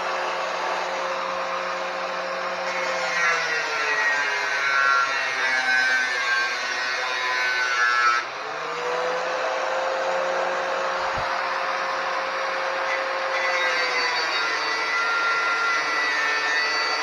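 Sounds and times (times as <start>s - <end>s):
grinder rasping on metal: 0.0s - 8.6s, 12.0s - 17.0s
grinder motor whining: 8.2s - 17.0s.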